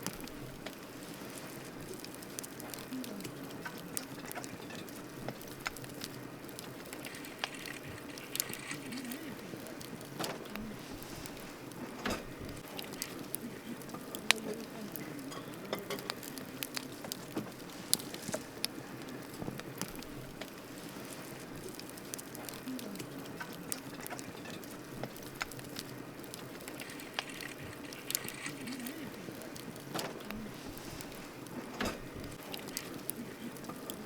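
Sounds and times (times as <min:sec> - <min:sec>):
campfire crackling and popping: 0:00.0 - 0:34.0
hiss of flames: 0:00.0 - 0:34.0.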